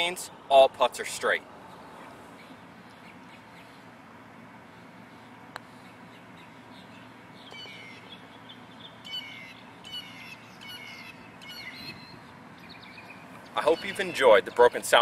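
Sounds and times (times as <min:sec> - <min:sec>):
bird chirping: 0:04.8 - 0:14.9.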